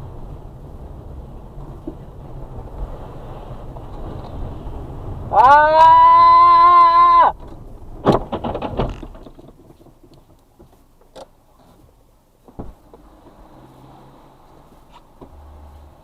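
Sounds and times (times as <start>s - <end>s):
dull thump: 7.4s - 10.0s, 12.4s - 13.0s.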